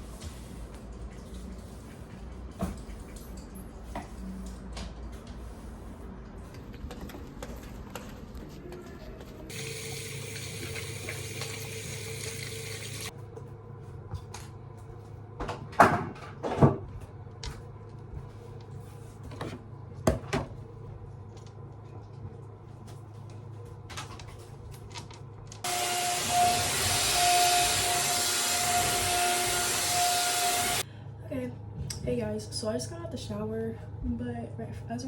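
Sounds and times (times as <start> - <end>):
tap running hiss: 9.5 - 13.1.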